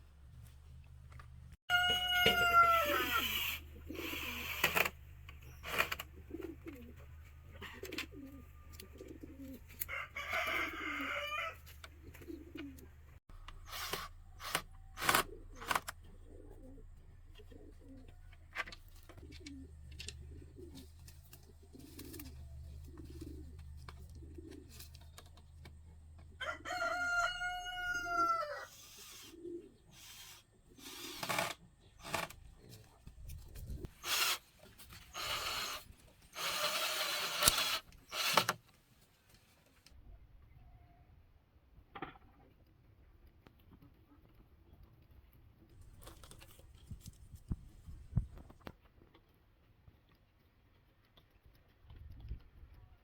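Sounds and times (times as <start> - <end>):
rooster crowing: 1.7 - 3.3, 9.9 - 11.6, 26.4 - 28.7.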